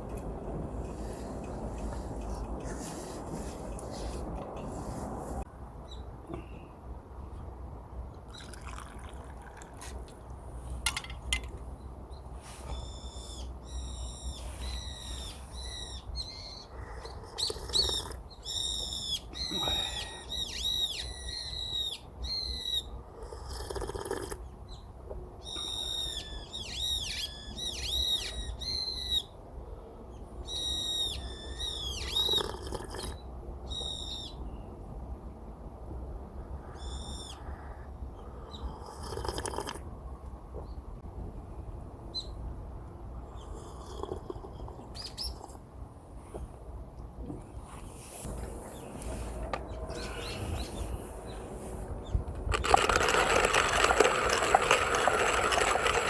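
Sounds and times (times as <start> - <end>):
steady low rumble: 0.0 - 5.8
birds chirping: 48.7 - 52.2.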